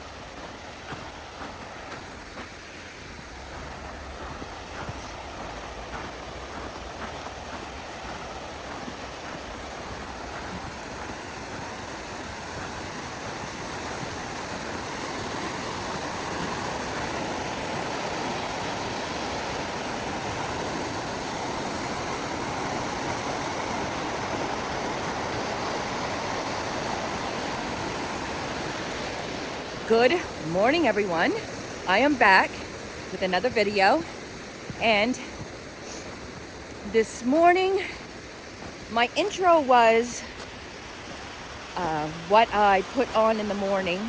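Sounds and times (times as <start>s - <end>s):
stream water rushing: 0.0s - 44.0s.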